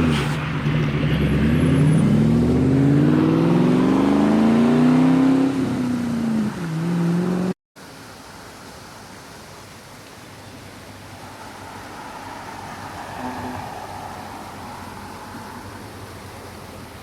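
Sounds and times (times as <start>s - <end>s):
car engine accelerating: 0.0s - 7.6s.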